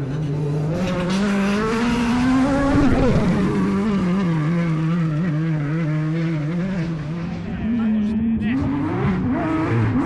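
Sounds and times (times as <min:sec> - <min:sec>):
rally car engine running hard: 0:00.0 - 0:10.0.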